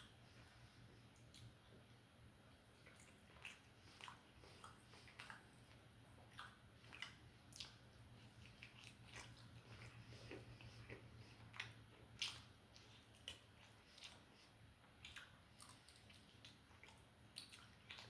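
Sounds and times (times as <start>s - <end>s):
faint low hum: 0.0s - 18.0s
chewing and biting food: 2.7s - 18.0s.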